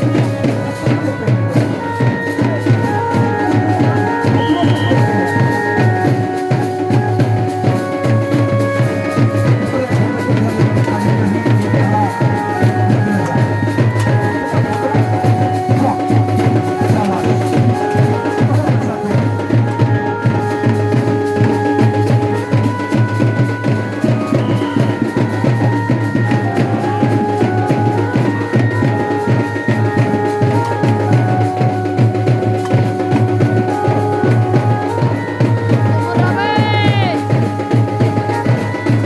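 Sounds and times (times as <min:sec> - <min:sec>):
fast steady drumming: 0:00.0 - 0:39.0.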